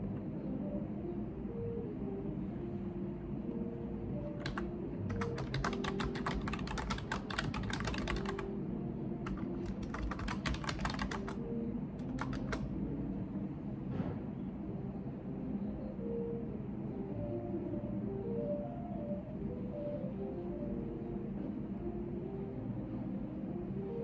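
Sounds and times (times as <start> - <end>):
low room hum: 0.0 - 24.0
keyboard key clicks: 12.0 - 12.7.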